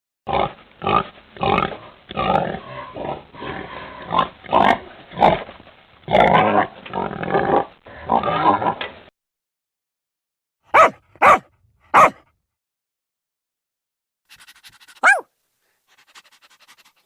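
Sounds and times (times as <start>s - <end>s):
pig grunting and oinking: 0.3s - 5.5s, 6.1s - 8.9s.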